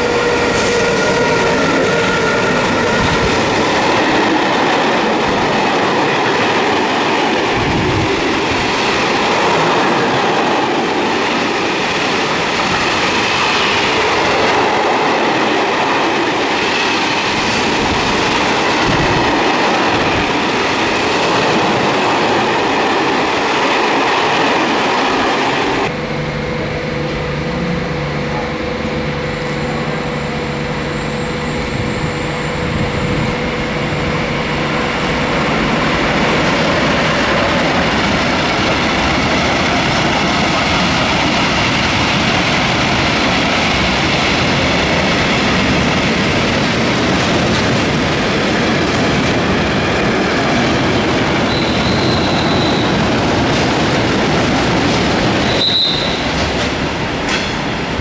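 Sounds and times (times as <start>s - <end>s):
electric locomotive hum: 0.0s - 58.0s
freight train wheels on rails: 0.0s - 58.0s.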